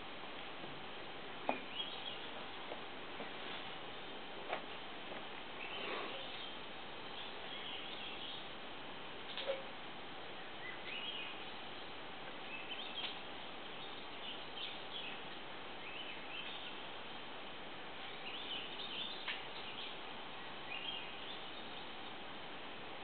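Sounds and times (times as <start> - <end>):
steady background hiss: 0.0 - 23.0
small birds chirping: 1.5 - 2.8, 5.4 - 8.6, 10.3 - 17.4, 18.0 - 22.4.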